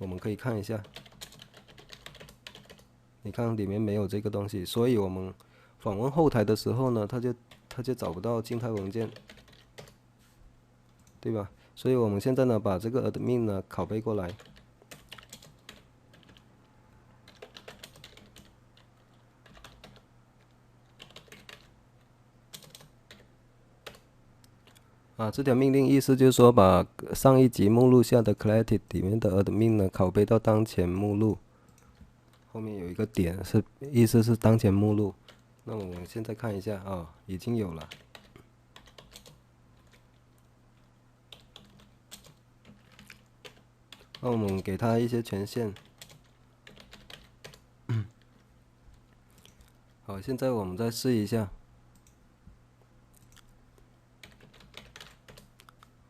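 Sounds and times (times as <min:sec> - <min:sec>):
faint keyboard typing: 0:00.0 - 0:03.5, 0:07.1 - 0:10.0, 0:10.8 - 0:11.4, 0:14.2 - 0:24.9, 0:31.6 - 0:32.6, 0:34.4 - 0:36.4, 0:37.7 - 0:49.9, 0:51.9 - 0:52.2, 0:52.8 - 0:56.0
low steady hum: 0:00.0 - 0:56.0.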